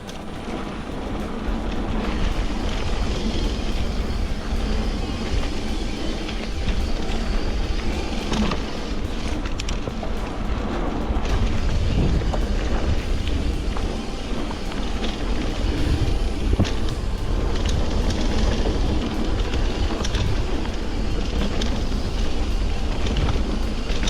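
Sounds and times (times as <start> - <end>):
wind rush on microphone: 0.0 - 24.0.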